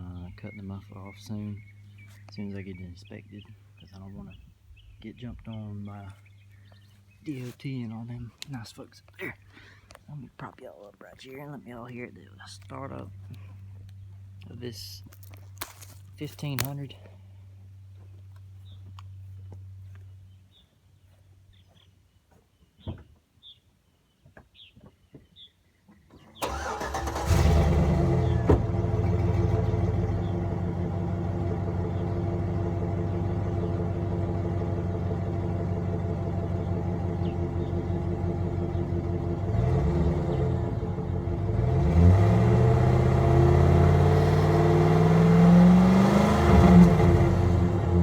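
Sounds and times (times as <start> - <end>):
truck engine starting and idling: 26.4 - 48.0.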